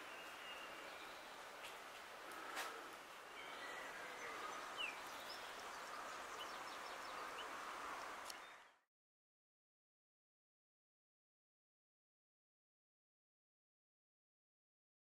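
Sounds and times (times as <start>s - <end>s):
steady background hiss: 0.0s - 8.6s
faint birdsong chirps: 0.0s - 8.9s.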